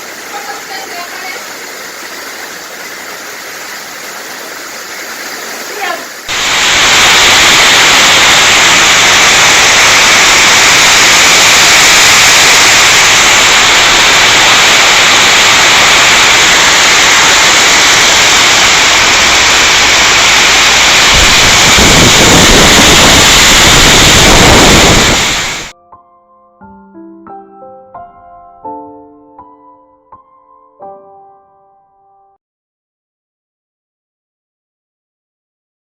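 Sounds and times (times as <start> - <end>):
storm wind and rain: 4.4 - 25.7
wind buffeting microphone: 18.6 - 25.7.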